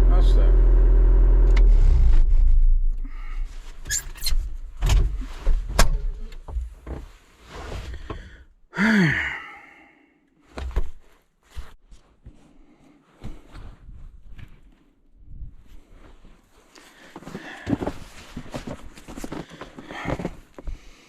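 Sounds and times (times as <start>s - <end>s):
engine cutting off: 0.0s - 3.1s
irregular knocks and thunks: 4.6s - 7.2s, 10.5s - 11.8s.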